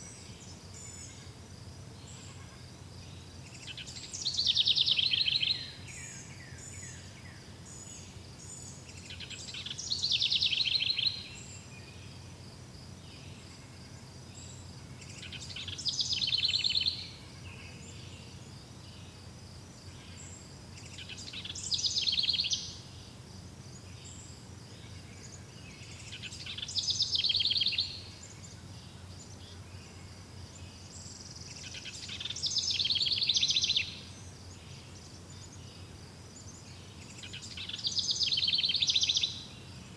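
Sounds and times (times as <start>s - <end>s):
faint insect buzz: 0.0s - 39.9s
songbird trilling: 21.0s - 22.8s, 31.8s - 34.0s, 37.2s - 39.4s.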